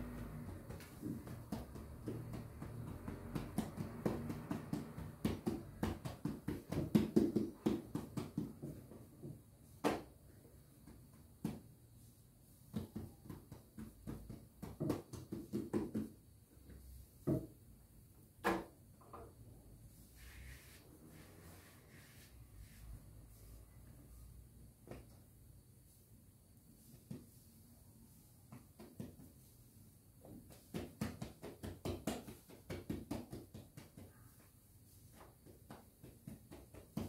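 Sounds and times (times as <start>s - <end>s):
soft pats of kneading dough: 0.0s - 18.3s, 19.0s - 37.0s
sharp knocks on a board: 18.4s - 19.1s.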